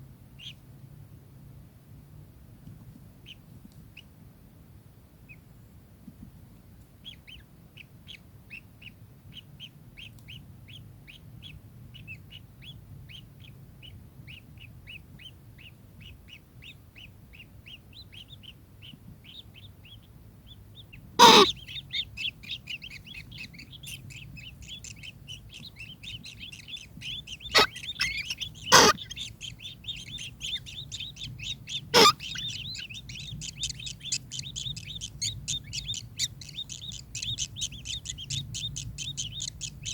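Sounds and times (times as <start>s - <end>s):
kingfisher calling: 21.2s - 21.9s, 23.6s - 39.9s.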